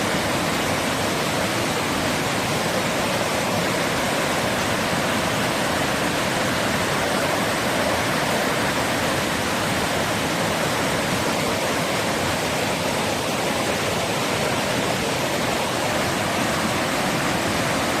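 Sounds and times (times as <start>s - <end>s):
surf rushing: 0.0s - 18.0s.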